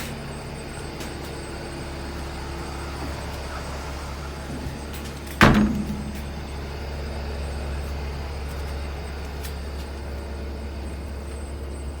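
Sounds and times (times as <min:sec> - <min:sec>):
diesel truck engine humming: 0:00.0 - 0:12.0
loud bang: 0:05.4 - 0:07.0.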